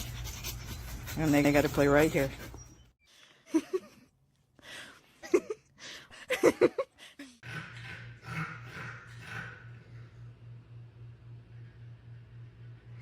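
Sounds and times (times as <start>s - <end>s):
low hum with hiss: 8.8s - 13.0s.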